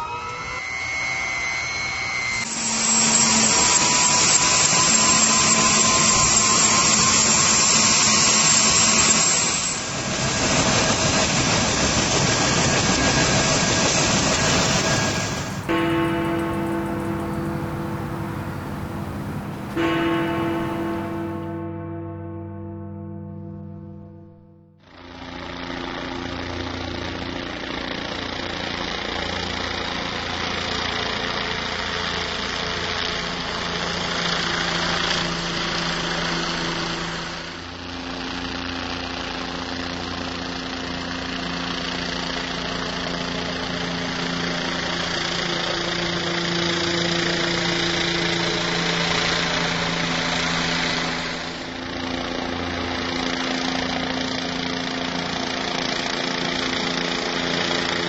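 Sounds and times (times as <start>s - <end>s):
boat engine running: 10.3s - 21.6s.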